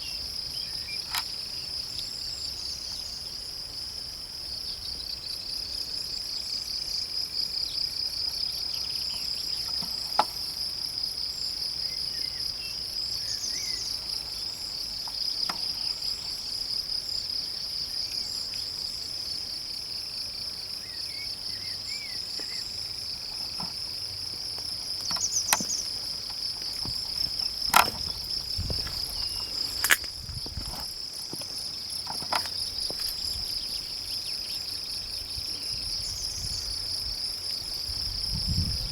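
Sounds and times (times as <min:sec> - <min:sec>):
crickets trilling: 0:00.0 - 0:38.9
sharp clicks: 0:25.0 - 0:30.2.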